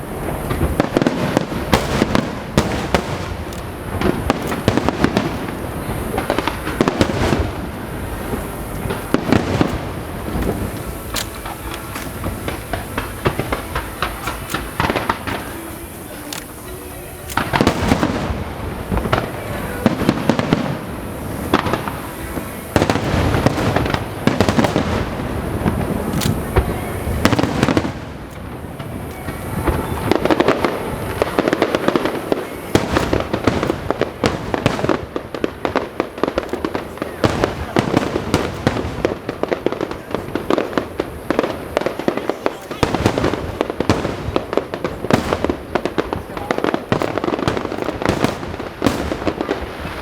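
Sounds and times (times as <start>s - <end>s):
fireworks bursting with bangs: 0.0s - 50.0s
fireworks crackling: 0.0s - 50.0s.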